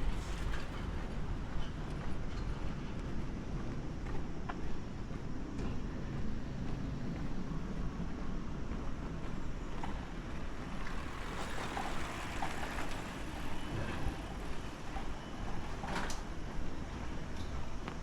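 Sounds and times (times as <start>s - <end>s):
vehicles passing: 5.6s - 17.1s.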